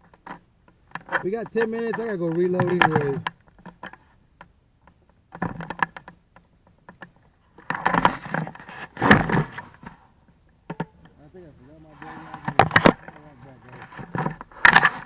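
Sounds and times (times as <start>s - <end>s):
rustling: 0.0s - 15.0s
crunching: 6.9s - 15.0s.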